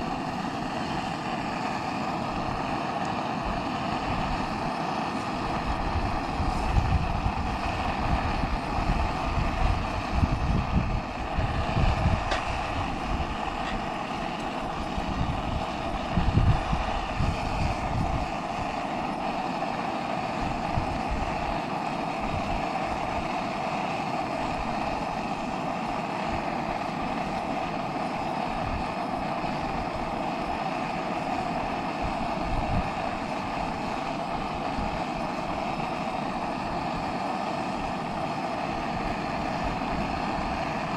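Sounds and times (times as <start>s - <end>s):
gas burner hissing: 0.0s - 40.9s
wind buffeting microphone: 5.5s - 18.8s.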